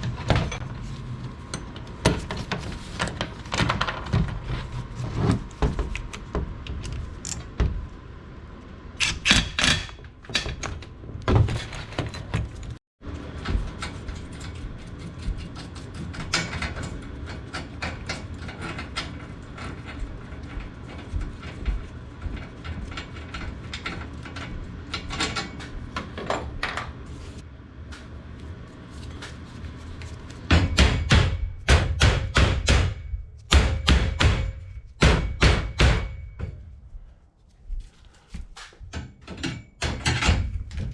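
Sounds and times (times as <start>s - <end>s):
metal knocks and clanks: 9.0s - 27.0s, 30.5s - 36.8s, 38.6s - 40.9s.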